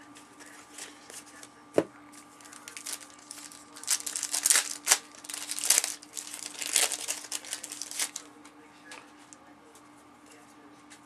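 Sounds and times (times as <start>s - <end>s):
cellophane wrapper crinkling: 2.4s - 8.3s.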